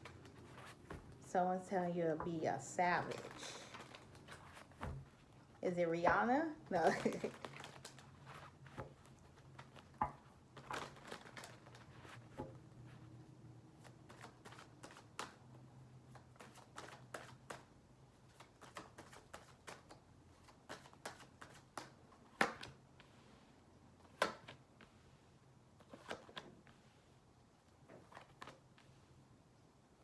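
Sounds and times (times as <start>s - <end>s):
cards being shuffled: 0.0s - 1.2s, 3.0s - 5.4s, 6.8s - 12.5s, 13.8s - 22.8s, 25.8s - 26.5s
faint room hum: 0.0s - 30.0s.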